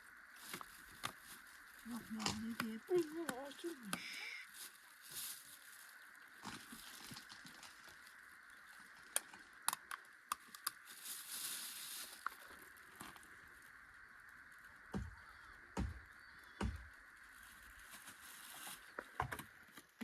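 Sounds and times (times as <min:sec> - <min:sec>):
faint high hum: 0:00.0 - 0:19.8
rustle: 0:00.2 - 0:09.2, 0:10.7 - 0:13.8, 0:17.2 - 0:19.1.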